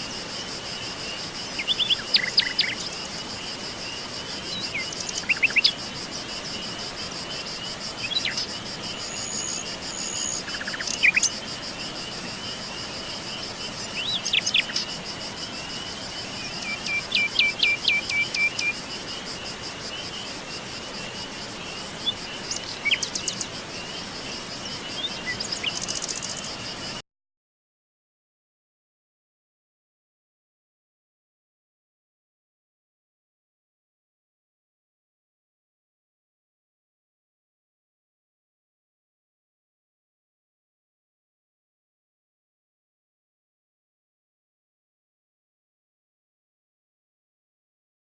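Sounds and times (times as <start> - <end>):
insect trill: 0.0 - 27.0
songbirds chirping: 0.0 - 27.0.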